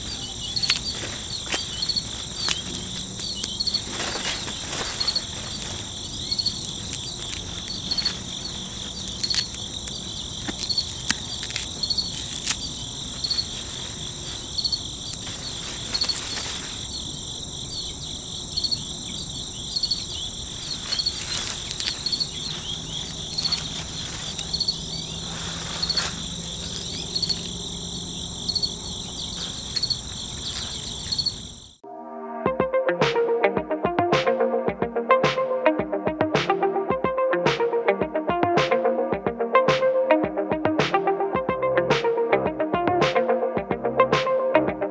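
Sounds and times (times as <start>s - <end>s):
crickets chirping: 0.0s - 31.8s
grass stems snipped with blade: 0.4s - 14.5s, 20.8s - 24.6s.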